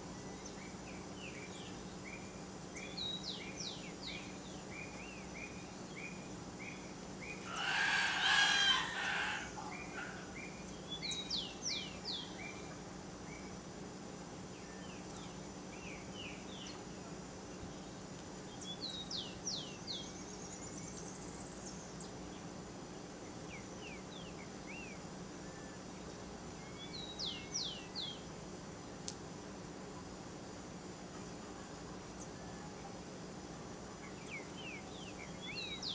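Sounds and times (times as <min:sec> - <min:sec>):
high falling bird chirps: 0:05.6 - 0:12.6
bird drawn-out call: 0:07.4 - 0:10.4.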